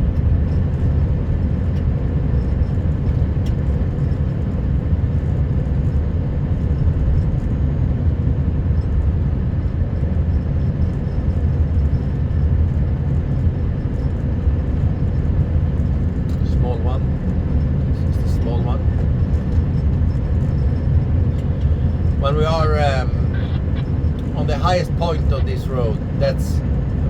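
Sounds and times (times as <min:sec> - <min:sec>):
truck diesel engine droning: 0:06.2 - 0:27.0
faint steady hum: 0:16.3 - 0:27.0.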